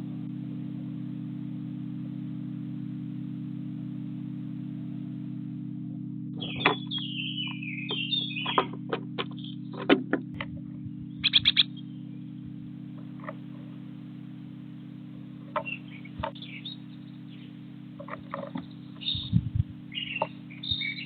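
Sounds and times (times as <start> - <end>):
steady low hum: 0.0 - 21.0
small bird chirping: 6.4 - 21.0.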